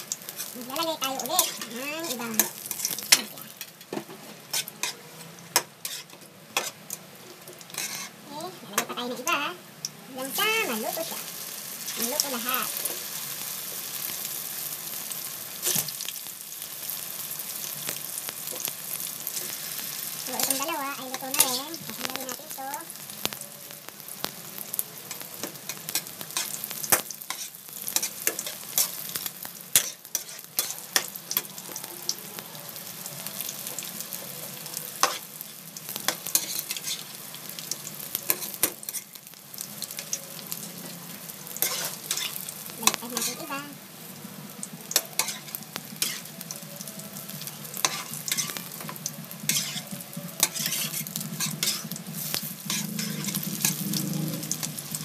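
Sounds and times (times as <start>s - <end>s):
tongs tapping and scraping wok: 0.0s - 9.4s, 20.3s - 23.4s, 25.0s - 31.6s, 35.0s - 40.2s, 41.6s - 43.7s, 44.8s - 46.6s, 47.7s - 54.9s
spring rolls sizzling in oil: 0.0s - 55.0s.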